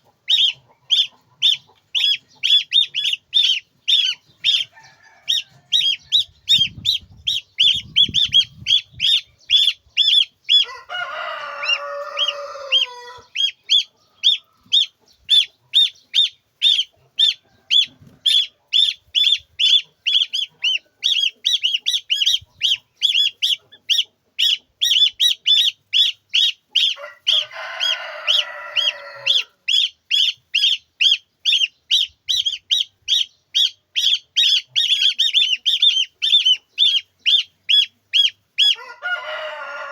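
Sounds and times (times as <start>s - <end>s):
chicks peeping: 0.0s - 39.9s
rooster crowing: 4.5s - 6.3s, 10.5s - 13.4s, 17.2s - 18.8s, 26.9s - 29.6s, 38.6s - 39.9s.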